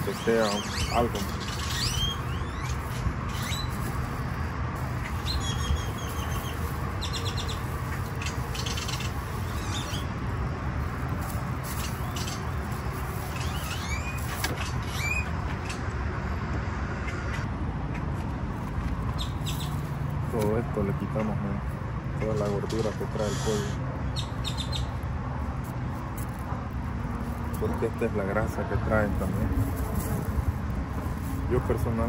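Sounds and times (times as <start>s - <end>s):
birds chirping and trilling: 0.0s - 16.0s, 19.1s - 19.9s, 22.4s - 25.1s
steady low rumble: 0.0s - 21.0s.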